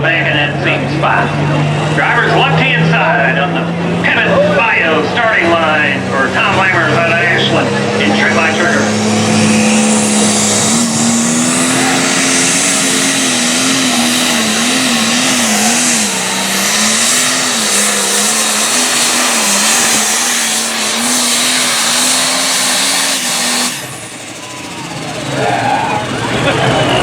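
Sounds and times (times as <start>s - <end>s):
diesel tractor engine at full throttle: 0.0s - 27.0s.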